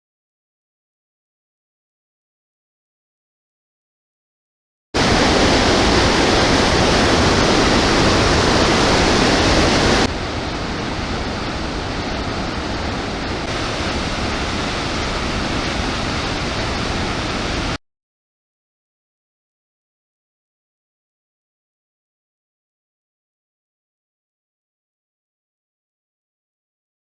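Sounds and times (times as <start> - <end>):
waterfall rushing: 5.0 - 17.8.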